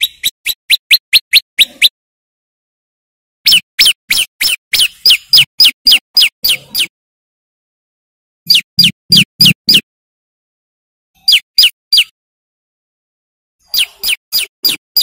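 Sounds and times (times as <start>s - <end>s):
bird singing sharp notes: 13.6s - 15.0s.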